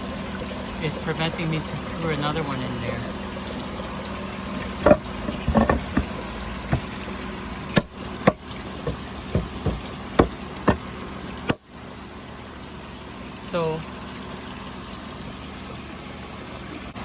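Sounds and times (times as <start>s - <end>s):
running pond water: 0.0s - 17.0s
knocks on wooden slats: 4.8s - 7.0s, 7.8s - 10.9s.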